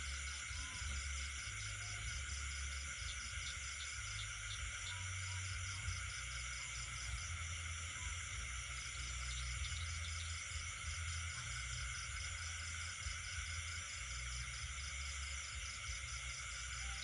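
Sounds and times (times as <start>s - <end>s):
insects and frogs trilling: 0.0s - 17.0s
low steady rumble: 0.0s - 17.0s.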